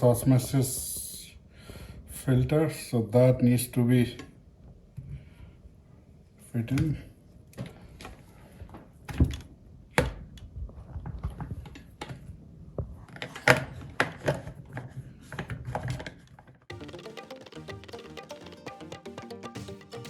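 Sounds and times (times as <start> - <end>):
music: 16.7 - 20.0.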